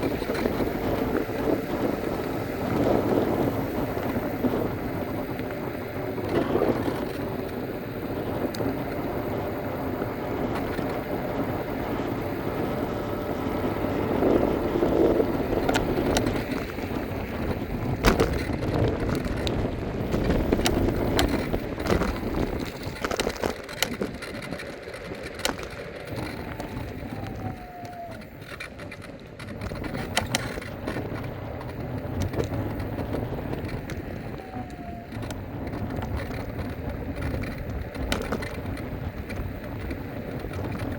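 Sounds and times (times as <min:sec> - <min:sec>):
tyres rumbling: 0:00.0 - 0:40.9
wind on microphone: 0:00.0 - 0:40.9
knocks and clicks from bumps: 0:15.3 - 0:40.9.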